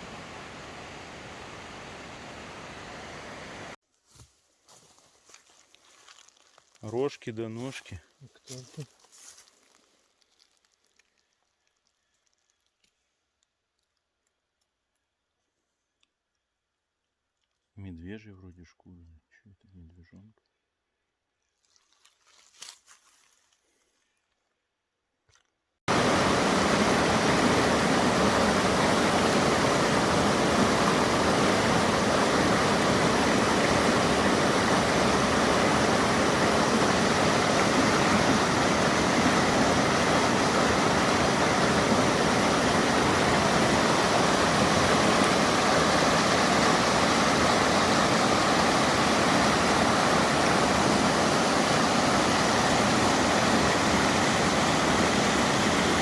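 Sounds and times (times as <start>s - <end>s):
waterfall rushing: 0.0s - 3.8s, 25.9s - 56.0s.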